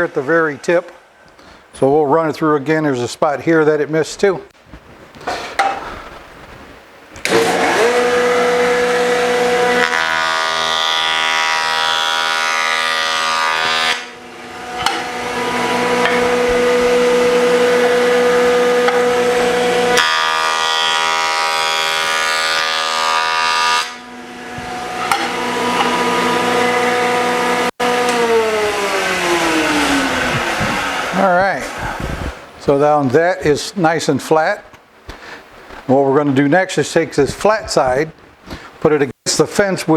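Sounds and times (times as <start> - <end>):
electric jointer whining: 7.2 - 32.4
jointer cutting board: 7.2 - 32.4.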